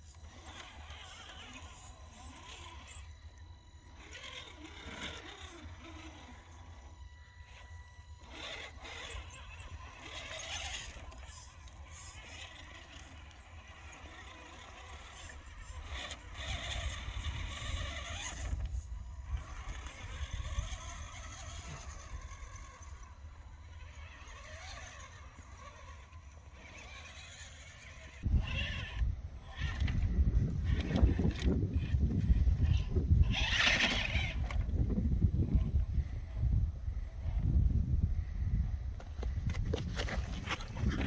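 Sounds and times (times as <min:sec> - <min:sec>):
rc truck motors whining: 0:00.0 - 0:41.0
wind on microphone: 0:28.2 - 0:41.0.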